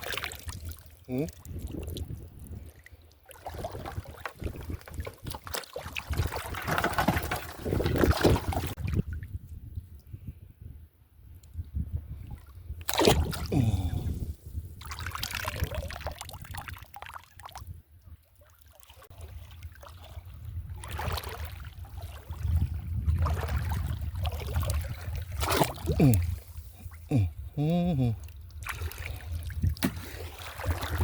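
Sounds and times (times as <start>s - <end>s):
water sloshing and trickling: 0.0s - 9.4s, 14.8s - 27.2s, 28.2s - 31.0s.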